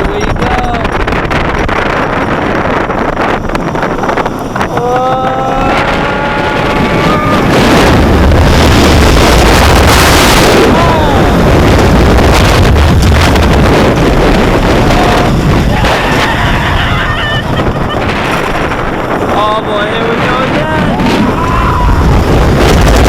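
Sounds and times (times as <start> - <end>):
wind buffeting microphone: 0.0 - 23.0
rider yelling: 4.8 - 7.9, 10.6 - 11.5.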